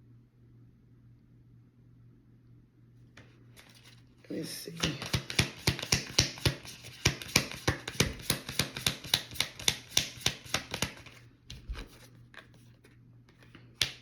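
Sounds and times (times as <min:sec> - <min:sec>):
cards being shuffled by hand: 0:03.2 - 0:04.1, 0:04.7 - 0:14.0.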